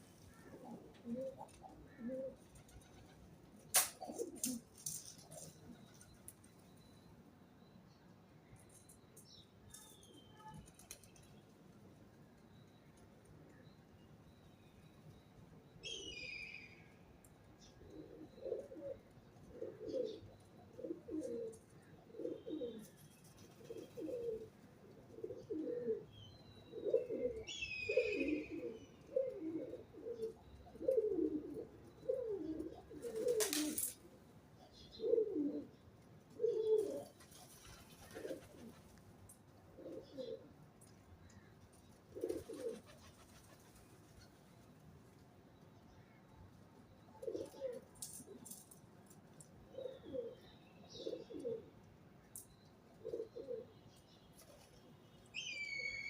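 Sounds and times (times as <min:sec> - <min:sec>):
pigeon cooing: 0:00.4 - 0:03.2, 0:03.8 - 0:04.7, 0:17.9 - 0:22.9, 0:23.5 - 0:26.1, 0:26.7 - 0:33.9, 0:35.0 - 0:35.7, 0:36.3 - 0:37.1, 0:37.8 - 0:38.8, 0:39.8 - 0:40.5, 0:42.2 - 0:43.6, 0:47.2 - 0:48.6, 0:49.7 - 0:50.4, 0:51.0 - 0:51.7, 0:53.0 - 0:53.7.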